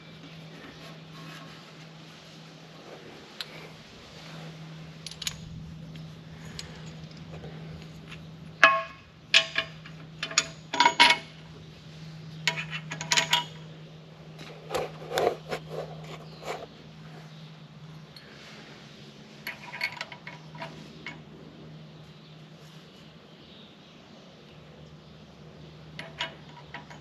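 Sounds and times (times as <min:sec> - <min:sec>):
steady low hum: 0:00.0 - 0:27.0
metal tools clinking: 0:05.0 - 0:05.5, 0:08.6 - 0:11.3, 0:12.4 - 0:13.6, 0:19.4 - 0:21.2, 0:26.0 - 0:27.0.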